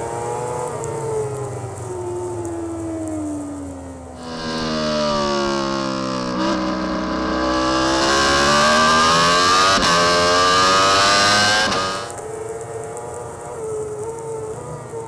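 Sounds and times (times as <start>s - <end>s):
superbike engine revving: 4.2s - 12.1s
gear change: 4.2s - 12.2s.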